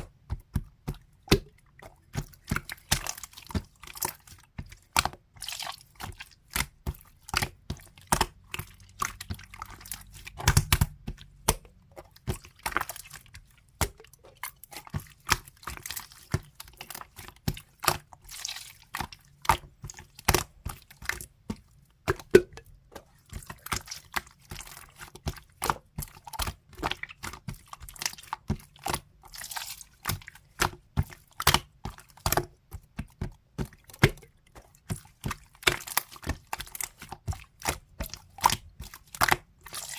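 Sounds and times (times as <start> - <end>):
wet squelches: 0.0 - 39.9
slime sticky clicks and pops: 10.4 - 11.0.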